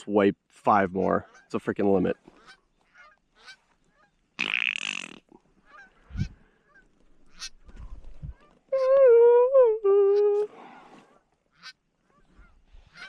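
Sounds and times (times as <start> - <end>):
geese honking: 2.3 - 4.2, 5.6 - 7.7, 11.5 - 13.0.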